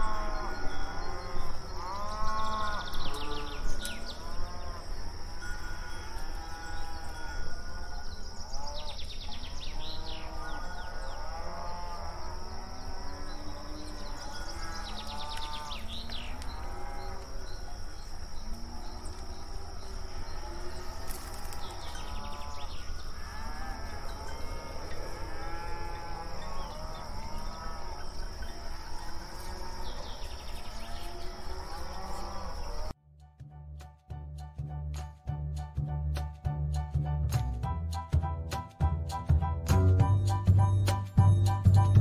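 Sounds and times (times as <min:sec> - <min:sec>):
cattle mooing: 0:00.0 - 0:04.9, 0:09.8 - 0:17.7, 0:18.4 - 0:32.9.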